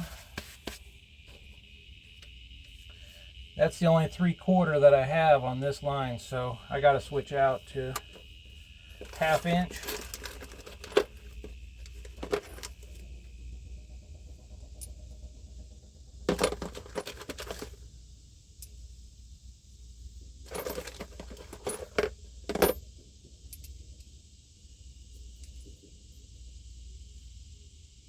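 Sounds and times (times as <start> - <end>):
small metal objects clinking: 9.0 - 13.0, 16.3 - 17.8, 20.5 - 22.8.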